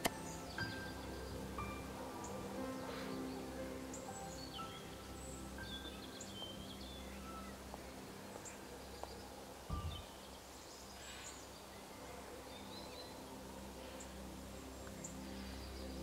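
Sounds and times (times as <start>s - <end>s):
bird chirps: 8.4s - 13.2s
dull low thump: 9.7s - 10.1s.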